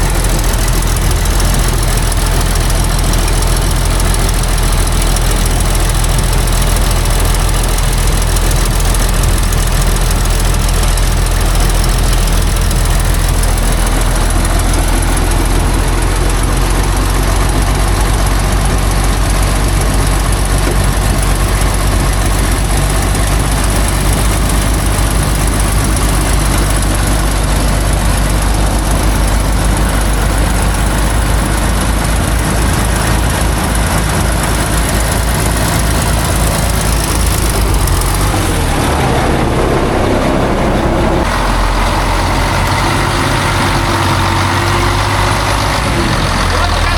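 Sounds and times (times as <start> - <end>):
diesel truck engine running: 0.0 - 46.9.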